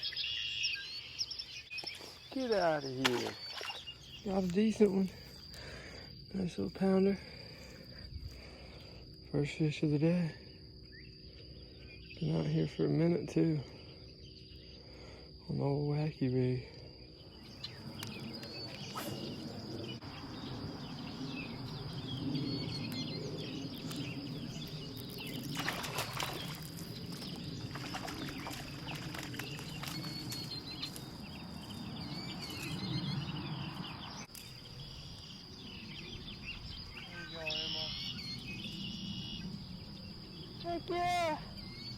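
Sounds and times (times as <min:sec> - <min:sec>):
birds chirping: 0:00.0 - 0:09.8, 0:10.4 - 0:41.9
steady high-pitched whine: 0:09.4 - 0:31.0.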